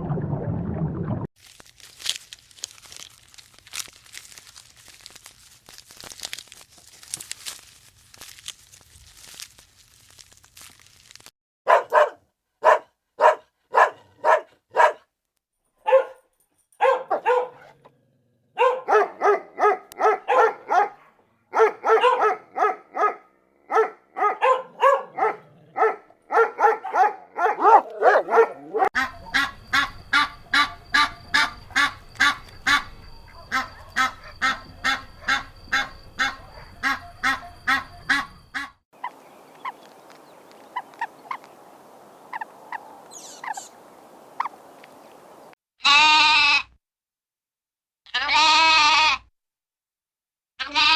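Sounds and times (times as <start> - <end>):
animal calling: 24.3 - 39.8, 42.3 - 43.8.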